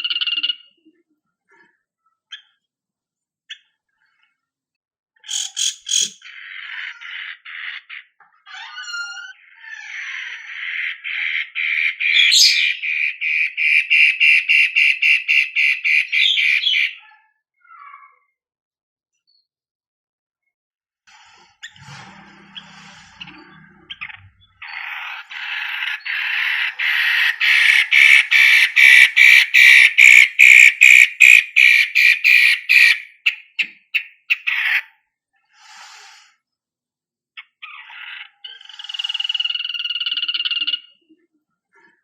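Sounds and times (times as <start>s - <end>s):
buzzy bird phrase: 5.2s - 8.1s, 22.6s - 33.6s
bird singing harsh rasping notes: 5.2s - 17.0s, 21.5s - 35.0s.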